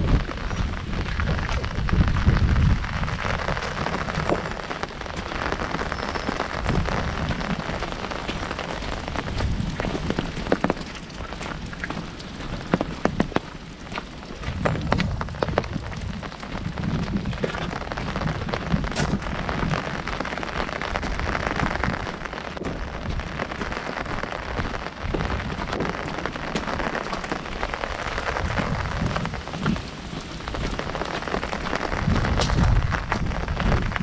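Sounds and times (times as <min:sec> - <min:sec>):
low rumble: 0:00.0 - 0:23.7
heavy rain on an umbrella: 0:00.0 - 0:34.0.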